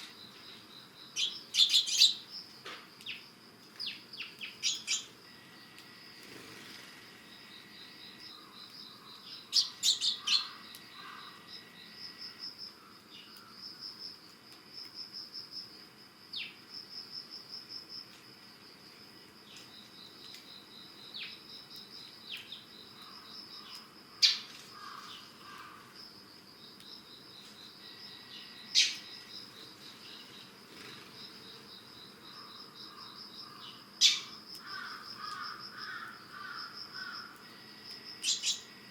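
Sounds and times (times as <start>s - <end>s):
sparrows chirping: 0.0s - 13.7s, 21.0s - 25.8s, 27.4s - 37.4s, 38.2s - 38.8s
insects trilling: 0.0s - 38.9s.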